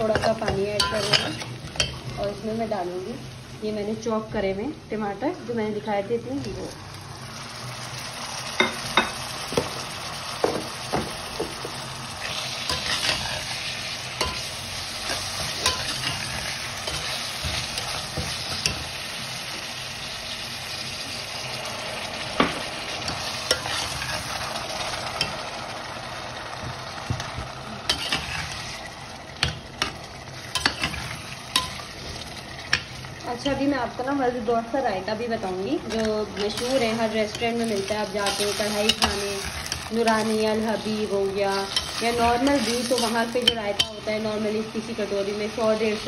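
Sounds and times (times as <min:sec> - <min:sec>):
tomatoes sizzling in oil: 0:00.0 - 0:46.0
metal spoon clinking against pot: 0:14.2 - 0:16.1.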